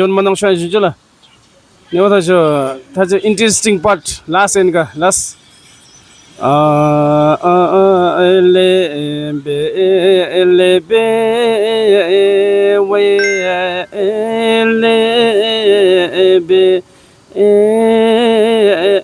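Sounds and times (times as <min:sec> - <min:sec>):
person singing solo: 0:13.2 - 0:14.3.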